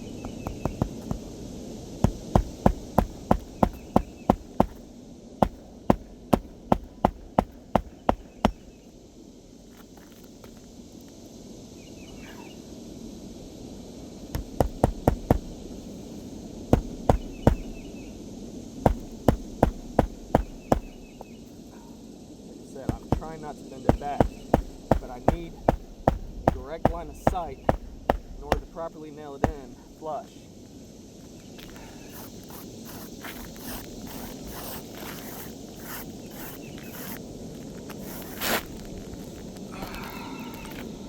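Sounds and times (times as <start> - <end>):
hammer striking roofing nails: 0.3 - 1.3, 2.0 - 8.7, 14.3 - 15.6, 16.7 - 17.8, 18.9 - 21.1, 22.9 - 29.8.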